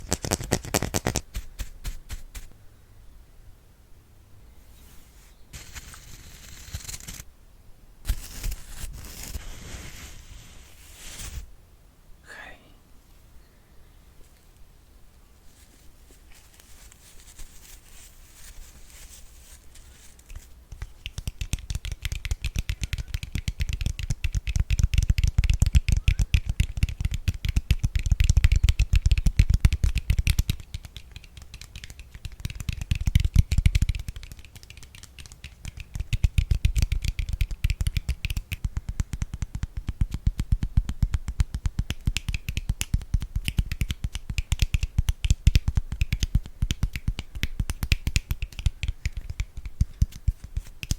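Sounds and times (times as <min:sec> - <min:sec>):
brush swishing across microphone: 0:04.6 - 0:07.2, 0:08.1 - 0:11.5, 0:15.4 - 0:20.6.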